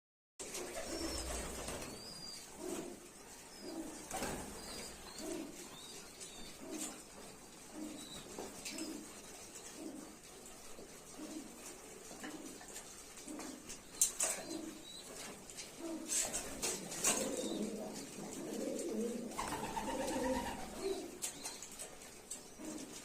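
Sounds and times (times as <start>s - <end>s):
pigeons cooing: 0.4s - 23.0s
small birds chirping: 0.8s - 10.2s.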